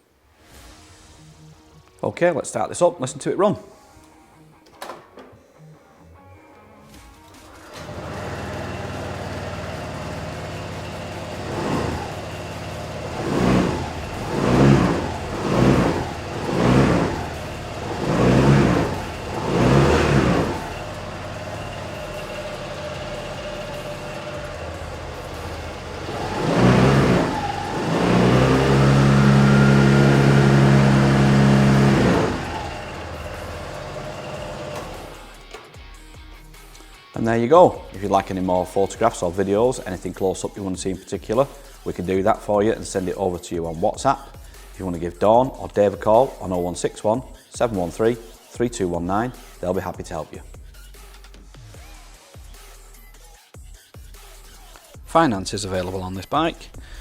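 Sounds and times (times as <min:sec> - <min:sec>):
scooter engine starting and idling: 0:06.9 - 0:35.8
scooter engine revving: 0:07.3 - 0:35.6.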